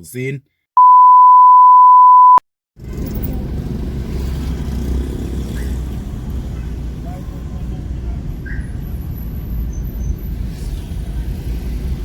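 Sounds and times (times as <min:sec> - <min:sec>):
car engine rumble: 0:02.8 - 0:12.0
road noise inside car: 0:02.8 - 0:12.0.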